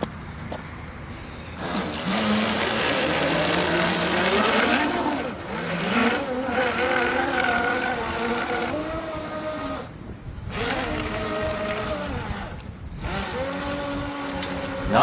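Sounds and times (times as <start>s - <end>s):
electric motor and propeller whine: 1.6s - 14.8s.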